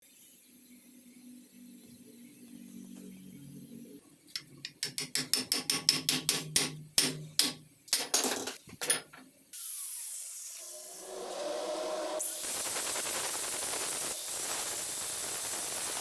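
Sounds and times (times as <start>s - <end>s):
hammer striking metal: 4.4s - 9.0s
loud steady hiss: 9.6s - 16.0s.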